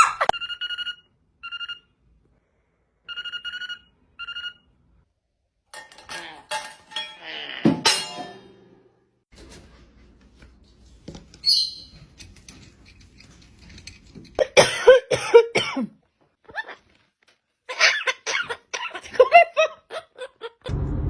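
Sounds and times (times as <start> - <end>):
short coughs: 14.4 - 16.0.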